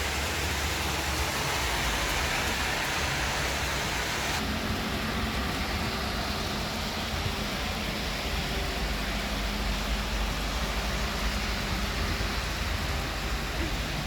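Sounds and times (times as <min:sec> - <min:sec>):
heavy rain hiss: 0:00.0 - 0:14.0.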